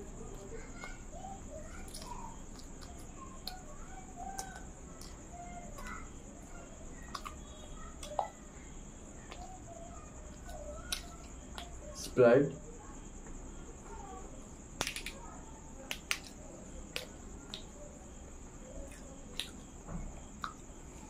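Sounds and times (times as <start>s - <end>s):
faint high-pitched whine: 0.0s - 21.0s.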